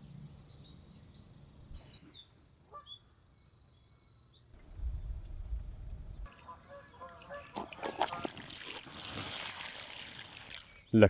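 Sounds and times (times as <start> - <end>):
faint birdsong: 0.0 - 8.3.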